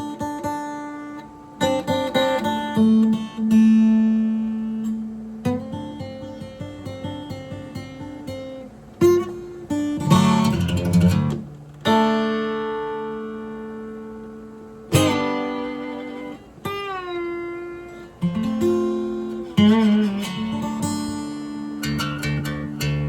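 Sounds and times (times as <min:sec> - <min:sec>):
acoustic guitar strummed chords: 0:00.0 - 0:23.0.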